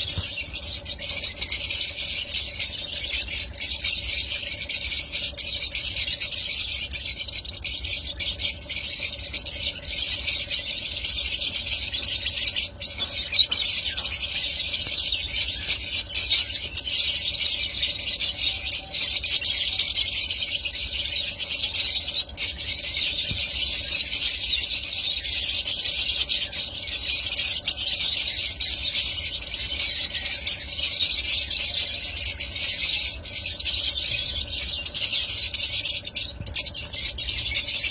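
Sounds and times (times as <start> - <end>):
lovebirds chattering and squealing: 0.0 - 37.9.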